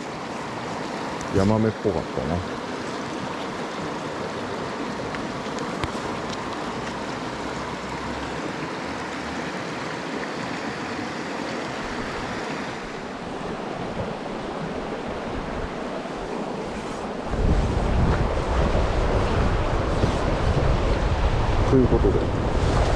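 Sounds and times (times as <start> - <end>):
mountain stream rushing: 0.0 - 22.9
wind buffeting microphone: 13.4 - 22.9.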